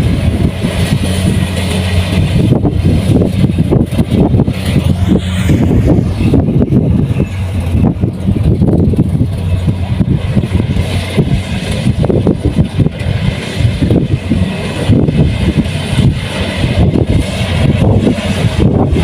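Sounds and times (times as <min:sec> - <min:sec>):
diesel engine humming: 0:00.0 - 0:19.0
machinery churning clatter: 0:00.0 - 0:19.0.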